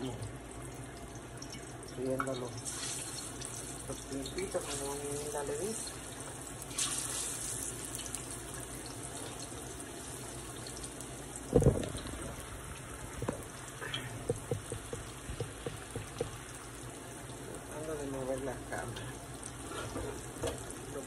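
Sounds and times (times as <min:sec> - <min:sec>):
plantain sizzling in oil: 0:01.2 - 0:21.0
loud thump: 0:11.5 - 0:12.0
small knocks and clicks: 0:13.1 - 0:13.5, 0:14.2 - 0:16.4.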